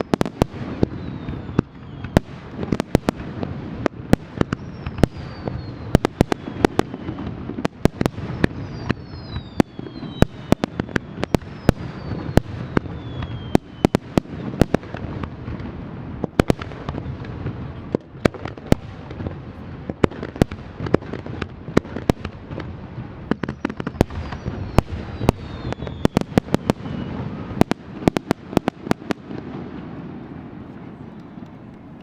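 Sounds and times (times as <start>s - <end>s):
firework whistles: 0.0s - 14.9s, 21.7s - 30.0s
firework bursts cracking: 0.0s - 32.0s.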